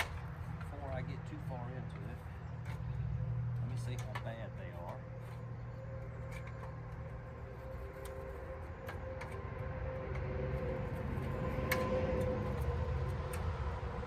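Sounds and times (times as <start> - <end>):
steady low hum: 0.0 - 14.0
small metal fasteners clicking: 1.9 - 9.4.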